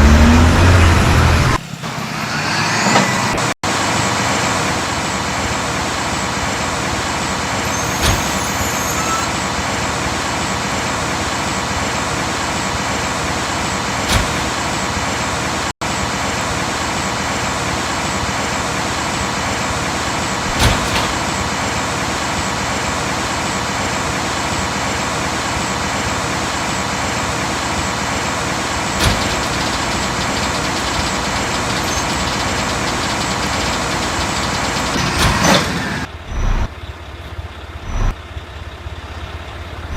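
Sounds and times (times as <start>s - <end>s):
garbage truck running: 0.0s - 39.9s.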